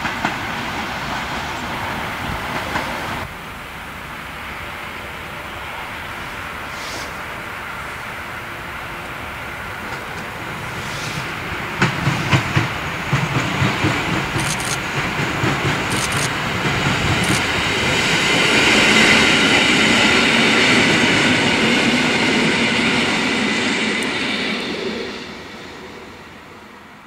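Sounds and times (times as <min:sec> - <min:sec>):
train rolling rumble and hiss: 0:00.0 - 0:27.0
train wheel clacks: 0:09.8 - 0:19.6.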